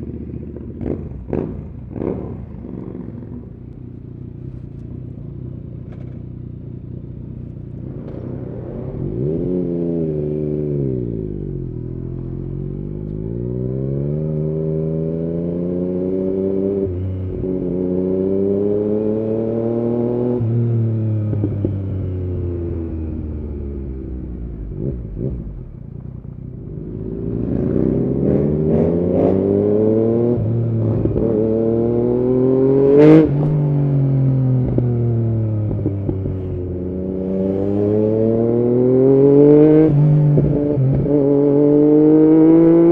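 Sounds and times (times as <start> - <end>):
motorcycle engine revving: 0.0 - 42.9
exhaust crack: 7.4 - 9.4.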